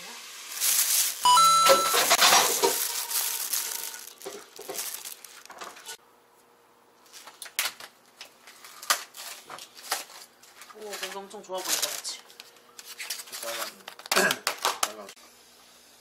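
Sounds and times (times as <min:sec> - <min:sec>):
plastic bag rustling and crinkling: 0:00.3 - 0:06.0, 0:08.4 - 0:14.1.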